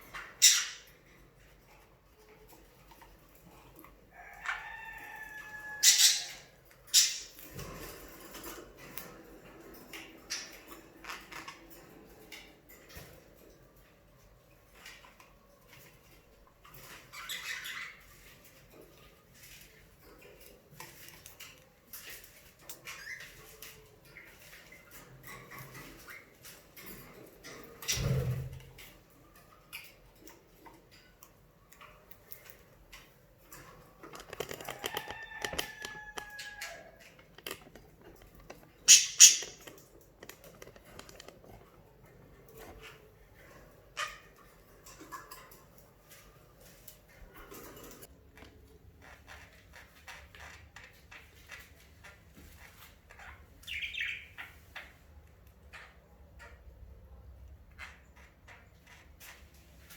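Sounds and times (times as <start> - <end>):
budgerigars chirping: 0.1 - 0.9, 38.8 - 39.7, 53.7 - 54.5
small clicks and scrabbling: 6.7 - 28.0, 28.6 - 53.3.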